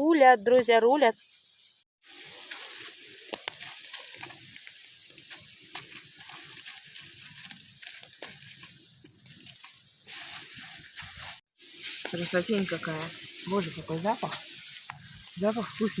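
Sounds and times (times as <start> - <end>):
campfire crackling and popping: 2.1 - 16.0.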